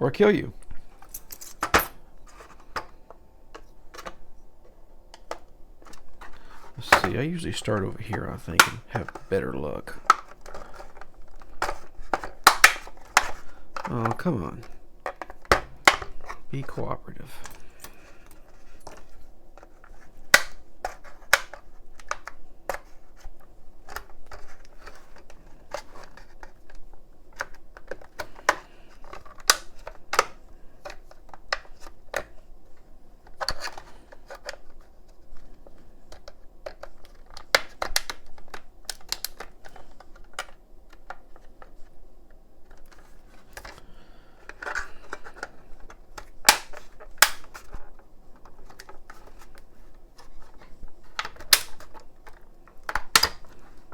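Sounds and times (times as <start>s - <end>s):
plastic casing clips snapping: 10.0s - 16.4s, 36.1s - 41.2s, 44.5s - 47.8s, 51.1s - 53.6s.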